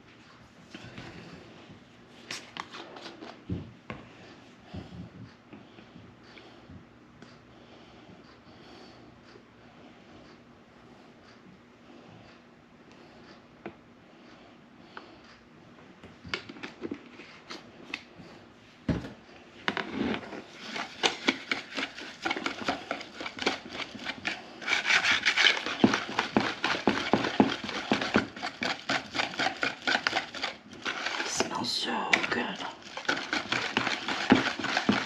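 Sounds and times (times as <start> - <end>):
utensil scraping in a bowl: 19.8 - 35.0.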